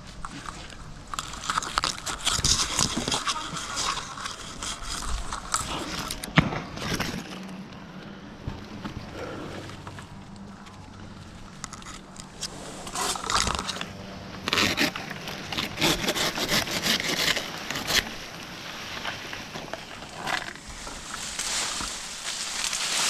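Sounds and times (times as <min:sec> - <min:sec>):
dry palm fronds crackling: 0:00.0 - 0:23.0
rasping saw strokes: 0:14.5 - 0:18.2.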